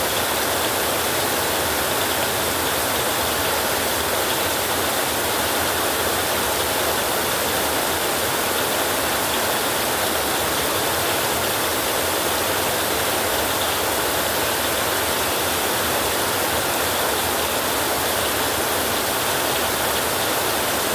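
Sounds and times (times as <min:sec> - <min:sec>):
heavy rain on a roof: 0:00.0 - 0:20.9.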